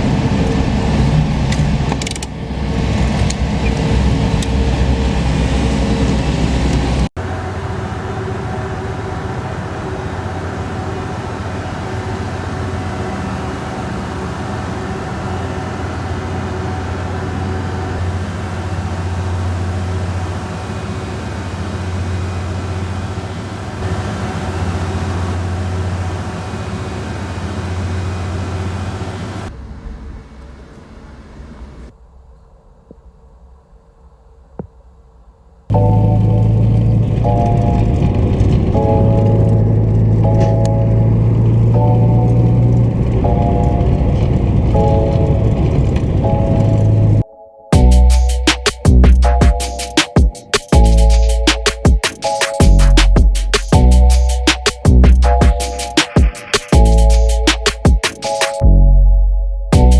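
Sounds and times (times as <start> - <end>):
motor vehicle engine: 0.0 - 31.4, 35.7 - 51.8, 52.6 - 58.0, 58.7 - 59.9
steady low drone: 35.7 - 50.0, 50.8 - 51.9, 52.6 - 56.0, 56.8 - 58.0, 58.6 - 59.9.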